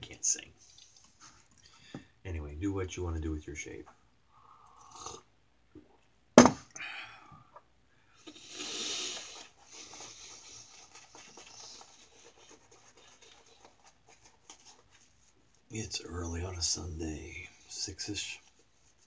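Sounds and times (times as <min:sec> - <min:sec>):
sharp knock: 0:06.4 - 0:06.6
razor rubbing on skin: 0:08.5 - 0:15.2
faint rapid scratching: 0:08.6 - 0:15.8, 0:17.2 - 0:19.0.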